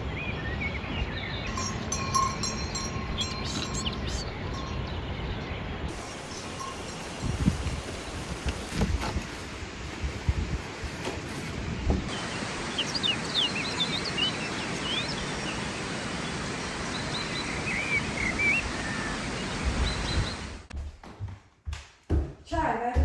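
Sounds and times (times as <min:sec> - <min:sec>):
wind noise: 0:00.0 - 0:12.7, 0:18.0 - 0:20.6
small birds chirping: 0:00.0 - 0:20.5.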